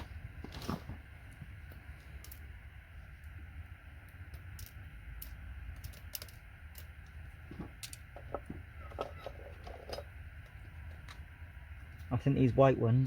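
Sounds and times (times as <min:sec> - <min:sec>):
steady low hum: 0:00.0 - 0:13.0
connector pins clicking: 0:04.1 - 0:11.2.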